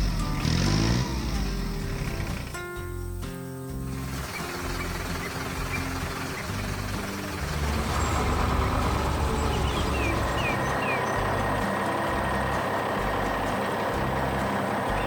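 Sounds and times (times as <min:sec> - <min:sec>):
truck engine running: 0:00.0 - 0:15.0
short rising chirps: 0:03.9 - 0:15.0.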